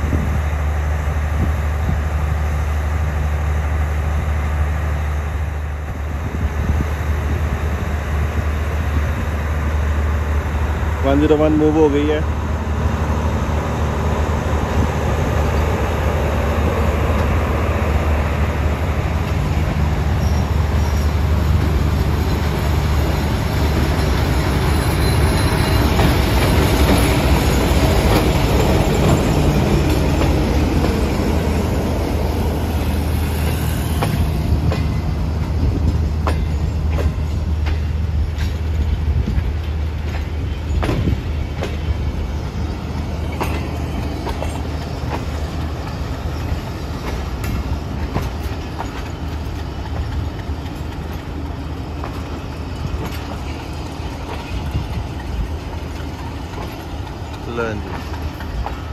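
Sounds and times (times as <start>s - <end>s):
train engine drone: 0.0s - 58.9s
wheel and rail rumble: 0.0s - 58.9s
wheels clicking over rail joints: 42.8s - 58.9s.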